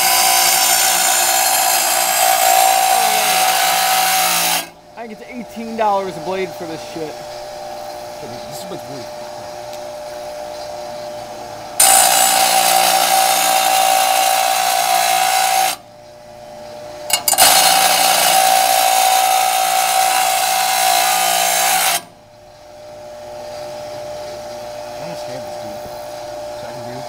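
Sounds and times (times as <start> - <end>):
grinder grinding steel blade: 0.0 - 9.0, 11.7 - 15.8, 17.1 - 22.1.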